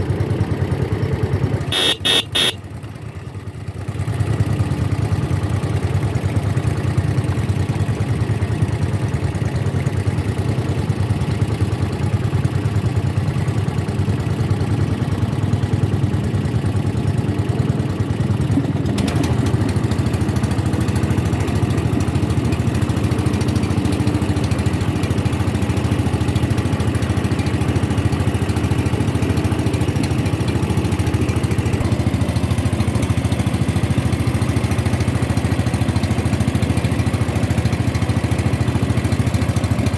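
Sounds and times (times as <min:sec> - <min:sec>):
boat engine humming: 0:01.7 - 0:02.6.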